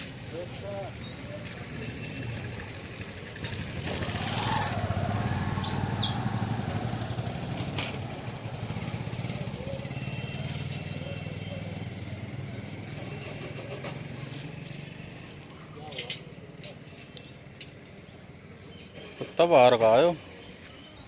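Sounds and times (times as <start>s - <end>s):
vehicle engine running: 0.0s - 15.6s.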